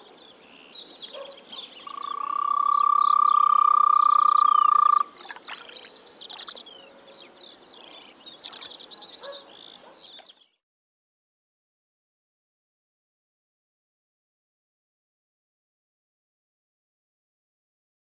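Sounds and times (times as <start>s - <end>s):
frog trill: 1.8s - 5.1s
short high pulsed frog calls: 1.8s - 5.3s.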